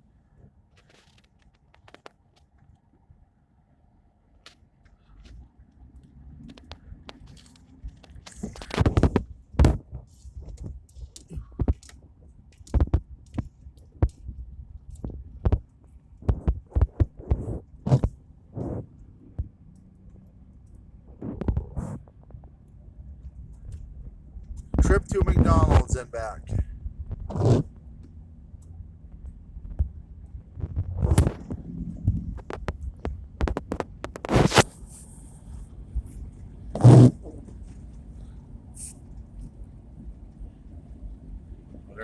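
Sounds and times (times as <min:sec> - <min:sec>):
vehicle interior rumble: 0:00.0 - 0:42.0
low thumps and knocks: 0:12.7 - 0:19.6, 0:23.2 - 0:34.4
knocks and clicks: 0:29.7 - 0:34.6.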